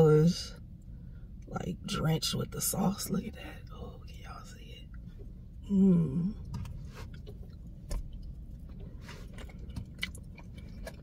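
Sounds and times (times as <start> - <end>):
person chewing soft food: 4.9 - 11.0
person humming: 5.7 - 6.4.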